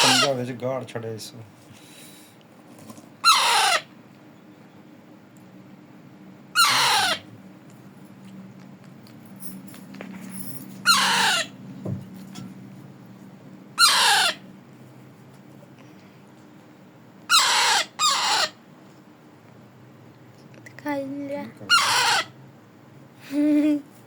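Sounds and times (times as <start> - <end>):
parrot squawking: 0.0 - 0.4, 3.2 - 3.9, 6.5 - 7.3, 10.8 - 11.6, 13.8 - 14.5, 17.3 - 18.6, 21.6 - 22.4.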